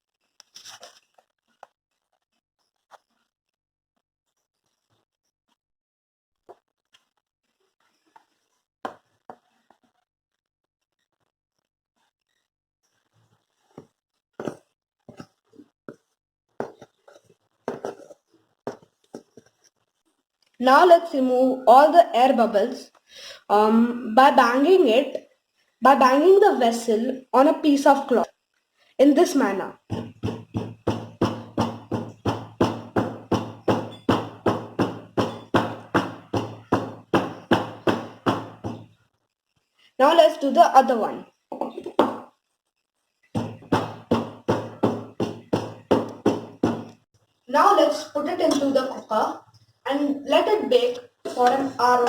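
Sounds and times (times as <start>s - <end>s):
utensil scraping and tapping bowl: 16.6s - 19.6s, 29.8s - 39.0s, 43.4s - 47.0s, 48.3s - 49.1s, 50.5s - 52.0s
cake tin knocking on surface: 29.8s - 38.9s, 43.4s - 47.0s.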